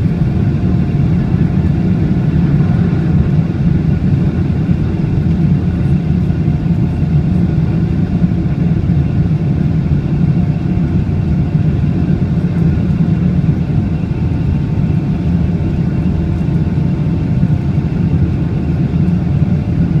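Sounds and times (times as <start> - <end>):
jet engines roaring at takeoff: 0.0 - 20.0.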